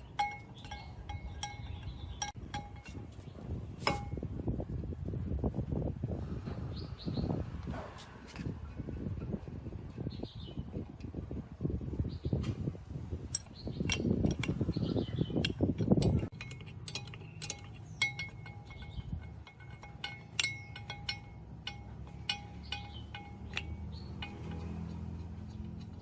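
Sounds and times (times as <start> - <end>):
metal parts clinking: 0.0 - 3.1, 13.3 - 26.0.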